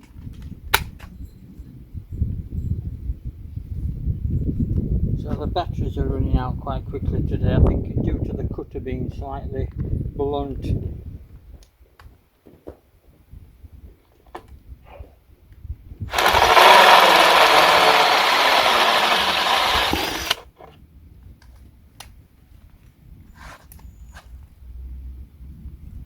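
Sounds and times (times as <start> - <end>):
drill cutting through metal: 16.1 - 20.4.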